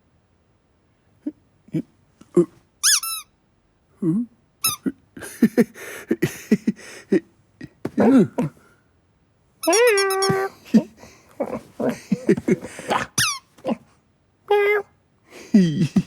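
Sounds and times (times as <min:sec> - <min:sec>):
grunting and chirping cat noises: 0:02.3 - 0:03.2, 0:09.6 - 0:13.9
cartoon kitten mew: 0:09.6 - 0:10.6, 0:12.9 - 0:13.4.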